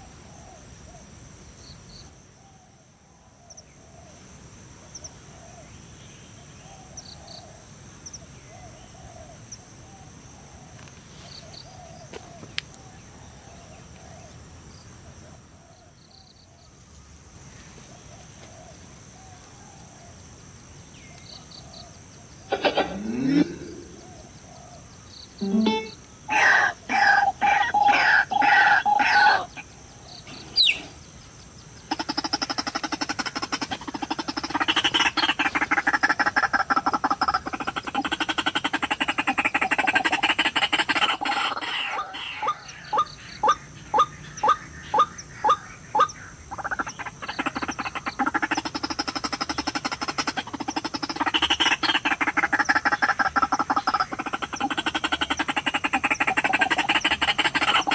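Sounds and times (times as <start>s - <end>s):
bird harsh pulsing croaking: 21.3s - 31.1s, 31.8s - 57.9s.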